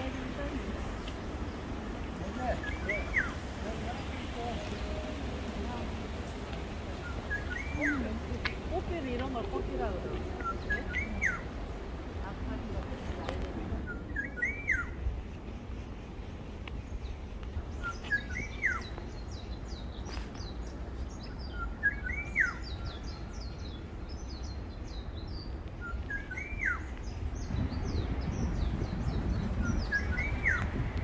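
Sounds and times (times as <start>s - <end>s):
birds twittering: 0.0s - 31.0s
low wind rumble: 0.0s - 31.0s
bird whistling call: 2.6s - 3.4s, 7.0s - 8.0s, 10.4s - 11.5s, 13.8s - 15.0s, 17.8s - 19.0s, 21.3s - 23.1s, 25.8s - 27.0s, 29.6s - 30.7s.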